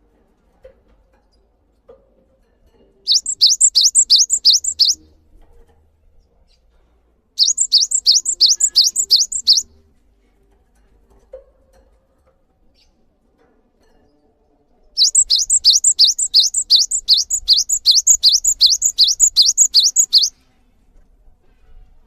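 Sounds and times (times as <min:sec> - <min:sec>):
songbird singing rising notes: 0:03.1 - 0:05.0, 0:07.4 - 0:09.7, 0:15.0 - 0:20.3.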